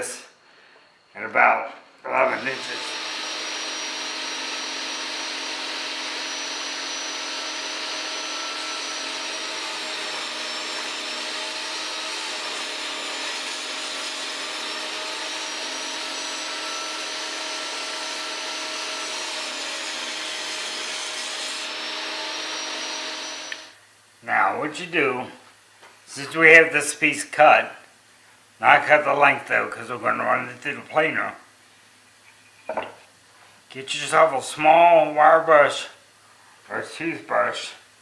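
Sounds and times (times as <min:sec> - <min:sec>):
power saw cutting wood: 0:02.2 - 0:23.8.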